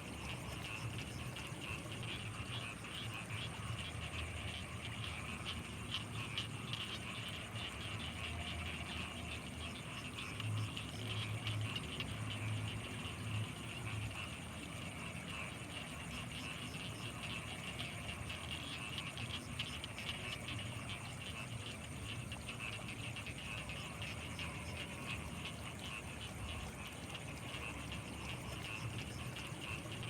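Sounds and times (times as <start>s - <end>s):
frog and insect trill: 0.0s - 30.0s
frogs croaking: 0.0s - 30.0s.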